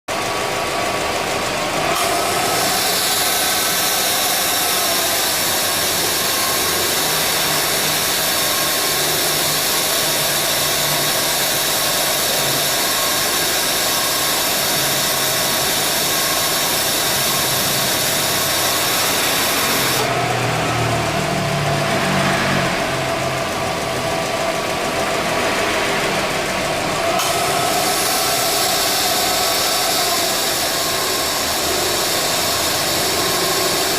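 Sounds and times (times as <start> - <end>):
car engine idling: 0.1 - 33.9
compressor high hiss: 1.9 - 20.7, 27.0 - 33.9.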